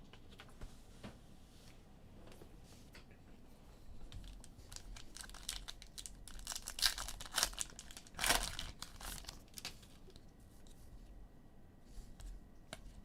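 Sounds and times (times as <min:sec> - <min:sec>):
wrapper crinkling and tearing: 0:04.2 - 0:10.2.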